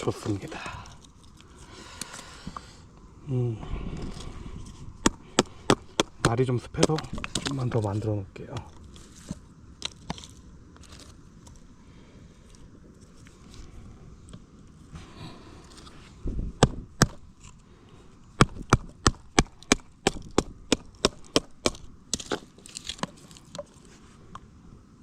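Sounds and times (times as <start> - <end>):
wood splitting and splintering: 5.0 - 11.1, 16.6 - 17.6, 18.3 - 23.7.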